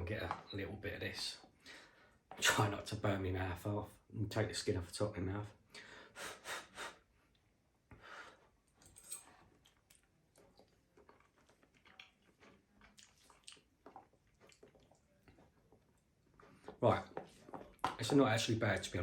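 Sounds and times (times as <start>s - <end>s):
chewing with wet clicks: 9.2s - 17.8s.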